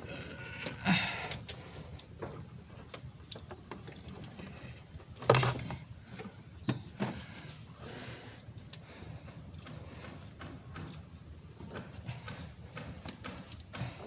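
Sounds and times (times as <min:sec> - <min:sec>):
oil filter scraping and clicking: 0:00.6 - 0:14.0.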